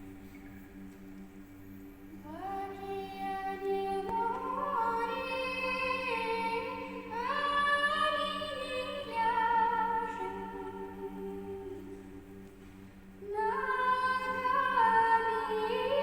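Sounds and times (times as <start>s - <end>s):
men's choir low drone: 0.0s - 16.0s
woman singing unaccompanied: 2.2s - 12.4s, 13.2s - 16.0s.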